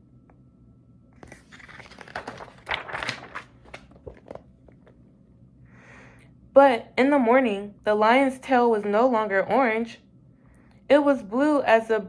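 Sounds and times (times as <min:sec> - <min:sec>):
paper pages rustling: 0:01.2 - 0:04.9.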